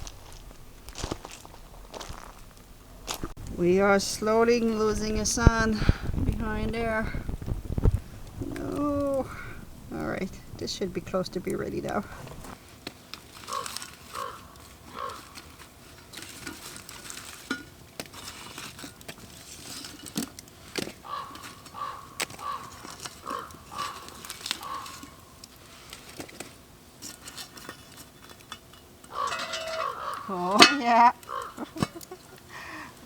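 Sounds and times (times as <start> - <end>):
metal clinks and scrapes: 16.0 - 20.4, 25.7 - 31.0.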